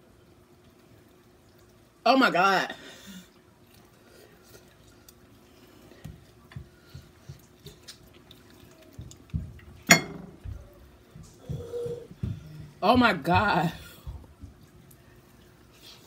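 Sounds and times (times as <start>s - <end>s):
wet chewing and lip-smacking: 3.6s - 9.8s.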